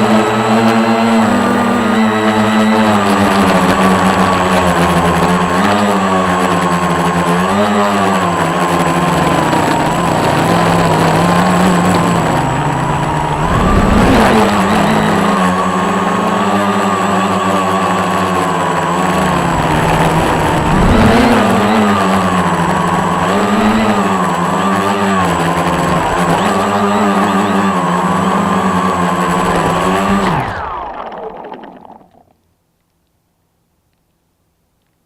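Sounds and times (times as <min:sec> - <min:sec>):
quadcopter propellers buzzing: 0:00.0 - 0:32.4
low rush of noise: 0:11.8 - 0:16.2, 0:19.1 - 0:24.4.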